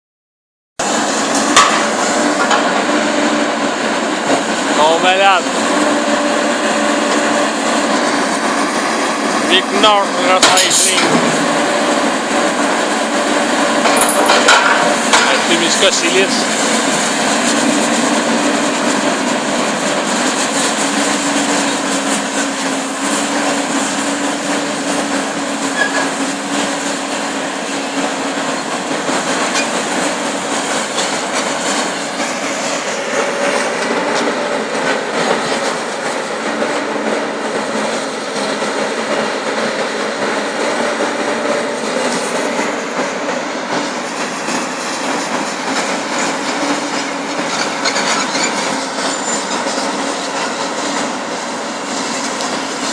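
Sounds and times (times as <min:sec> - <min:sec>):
sharp metal clanks: 0:13.8 - 0:15.4
metal grinding and squealing: 0:25.6 - 0:26.4, 0:45.1 - 0:49.9.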